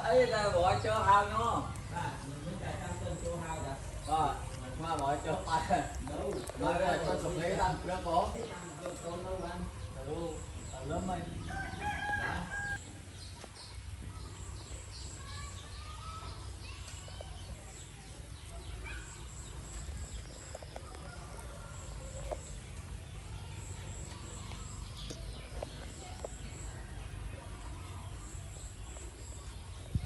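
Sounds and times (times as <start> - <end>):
small birds chirping faintly: 0.0 - 30.0.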